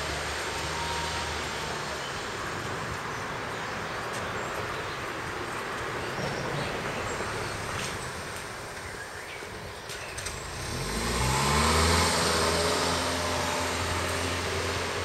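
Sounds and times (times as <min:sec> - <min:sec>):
train rumbling over viaduct: 0:04.9 - 0:09.8.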